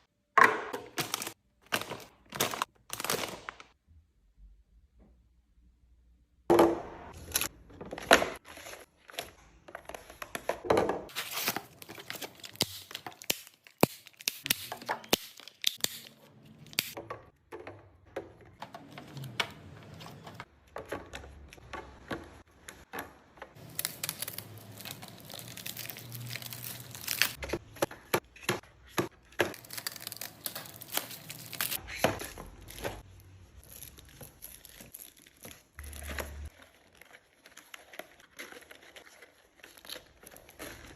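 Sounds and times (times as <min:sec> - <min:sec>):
items clicking and knocking: 0:00.3 - 0:03.7, 0:06.5 - 0:40.9
plastic packaging crinkling and tearing: 0:00.9 - 0:03.8, 0:11.1 - 0:17.0, 0:23.6 - 0:27.5, 0:29.5 - 0:40.9.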